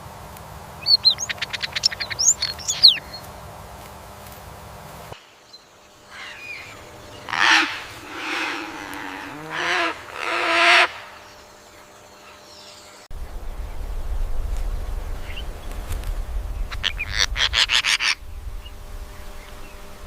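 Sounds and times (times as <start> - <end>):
animal calling harshly: 6.1 - 11.2.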